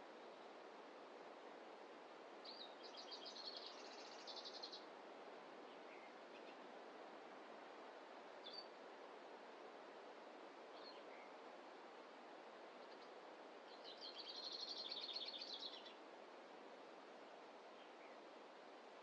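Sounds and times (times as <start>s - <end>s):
faint forest ambience hiss: 0.0s - 19.0s
bird chirp: 2.5s - 4.8s, 13.7s - 16.0s.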